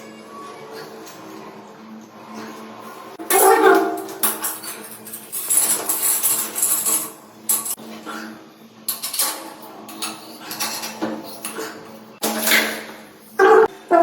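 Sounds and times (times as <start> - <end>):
metal tools clinking and scraping: 3.2 - 7.8, 8.9 - 13.5.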